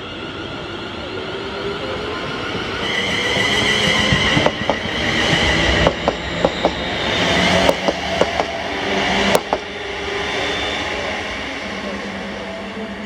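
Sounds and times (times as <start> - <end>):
train rumble: 0.0 - 13.0
train wheels clacking on rail joints: 3.3 - 8.6, 9.3 - 9.7.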